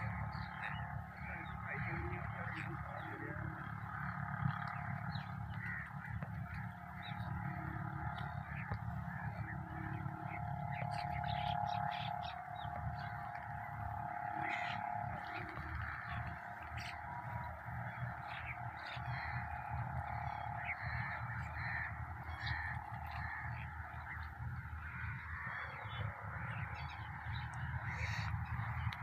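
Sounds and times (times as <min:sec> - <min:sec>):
birds honking and squawking: 0:00.0 - 0:29.0
low background rumble: 0:00.0 - 0:29.0.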